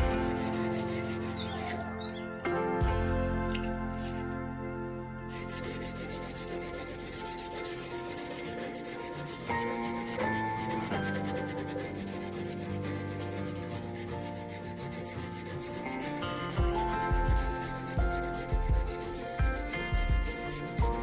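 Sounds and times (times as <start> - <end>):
abrasive rubbing on steel: 0.0 - 2.0, 5.3 - 21.0
background music: 0.0 - 21.0.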